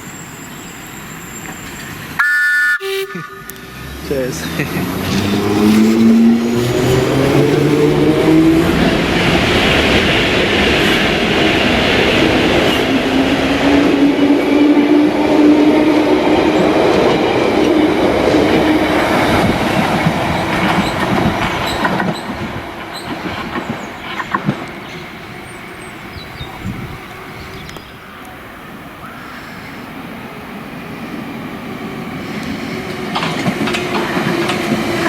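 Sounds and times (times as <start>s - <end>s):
steady rising tone: 3.2s - 20.5s
train wheels clattering: 5.0s - 25.8s, 32.3s - 35.0s.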